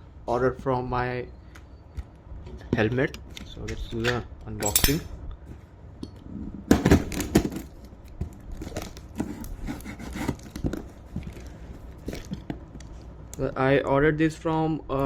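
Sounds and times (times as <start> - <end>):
packaging ripping and crinkling: 7.0 - 12.5.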